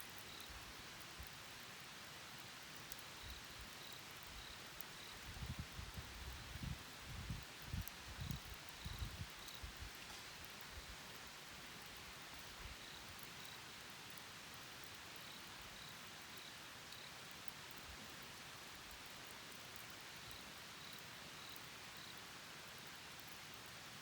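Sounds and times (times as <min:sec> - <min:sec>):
steady soft hiss: 0:00.0 - 0:24.0
faint high-pitched chirps: 0:02.9 - 0:05.6.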